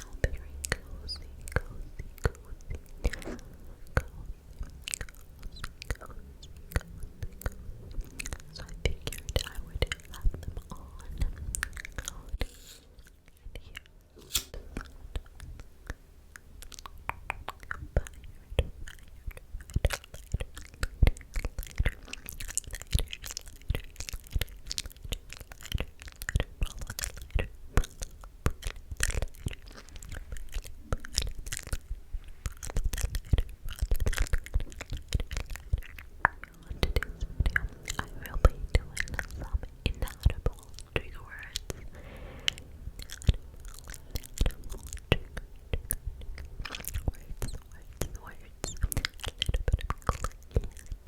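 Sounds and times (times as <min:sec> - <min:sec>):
wet mouth clicks and smacks: 0:00.0 - 0:12.4, 0:14.8 - 0:41.9, 0:42.6 - 0:51.0
whispering: 0:00.0 - 0:12.5, 0:13.2 - 0:13.9, 0:17.9 - 0:19.3, 0:36.3 - 0:46.0, 0:46.6 - 0:49.7.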